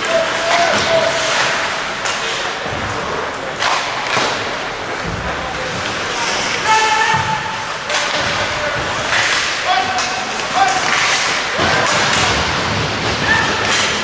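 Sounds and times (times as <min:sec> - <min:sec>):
murmur of voices: 0:00.0 - 0:14.0
skates scraping on ice: 0:00.1 - 0:14.0
sticks and puck knocking: 0:07.9 - 0:14.0.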